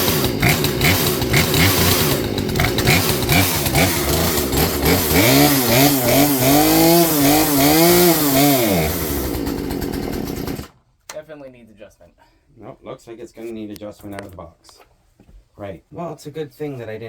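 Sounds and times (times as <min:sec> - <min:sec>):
chainsaw engine running unevenly: 0:00.0 - 0:10.8.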